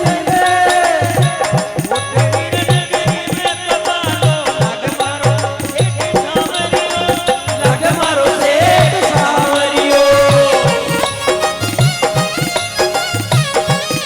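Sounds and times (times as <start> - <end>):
drums and rattling percussion: 0.0 - 14.0
instrumental folk melody: 9.9 - 14.0.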